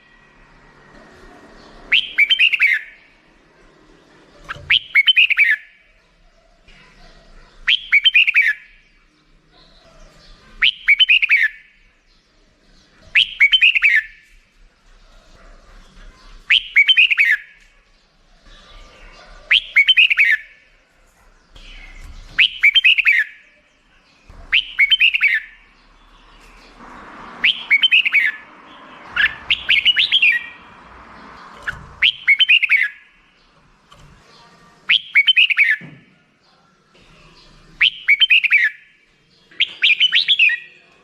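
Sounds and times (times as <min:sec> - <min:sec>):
bulbul singing chirpy phrases: 0:34.8 - 0:35.8.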